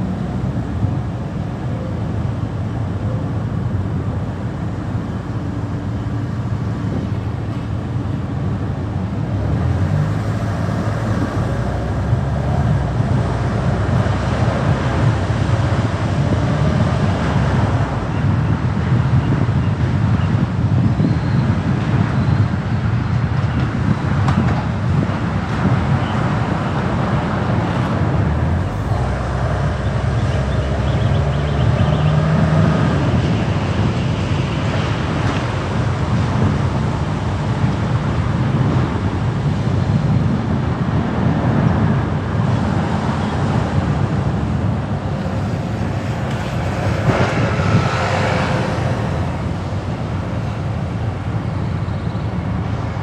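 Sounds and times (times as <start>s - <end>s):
passing traffic: 0.0s - 53.0s
tyres and engine rumble: 0.0s - 53.0s.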